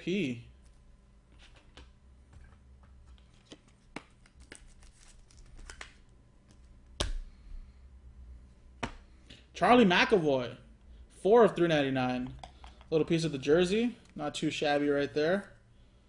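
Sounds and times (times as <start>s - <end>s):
cards and packaging rustling: 3.1s - 6.0s.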